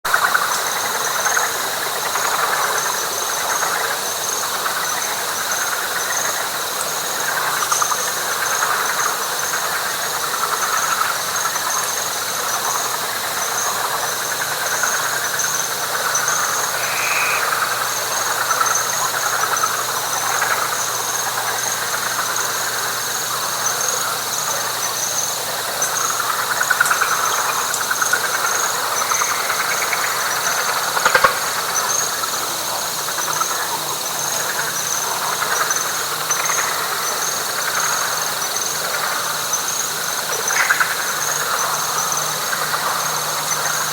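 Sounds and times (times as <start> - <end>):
frogs calling: 0.1 - 43.9
high-pitched whine: 16.0 - 18.3.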